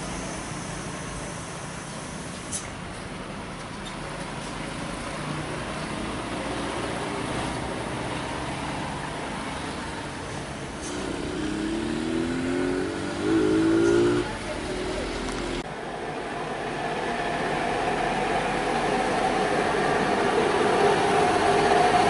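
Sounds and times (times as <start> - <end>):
road noise: 0.0 - 22.0
truck engine labouring: 6.0 - 15.7.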